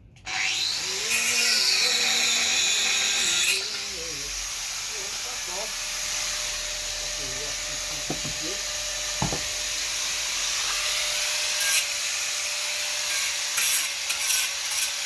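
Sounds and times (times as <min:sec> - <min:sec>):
angle grinder grinding steel: 0:00.3 - 0:15.0
single knock: 0:09.2 - 0:09.5.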